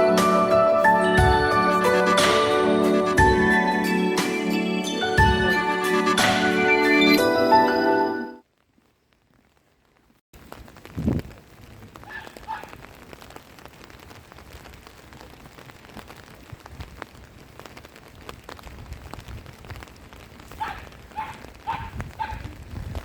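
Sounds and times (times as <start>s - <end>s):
steady rain: 0.0s - 6.6s, 8.4s - 23.0s
animal calling: 20.6s - 22.6s.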